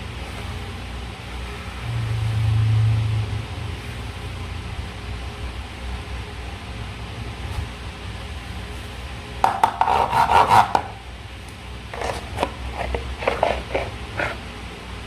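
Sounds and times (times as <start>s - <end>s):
slime squishing: 11.9s - 14.4s.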